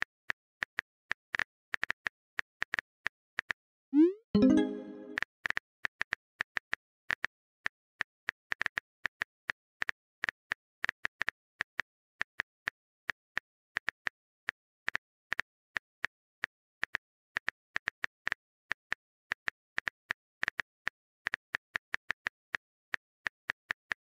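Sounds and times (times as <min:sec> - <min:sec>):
pitched chime: 0:04.0 - 0:05.2.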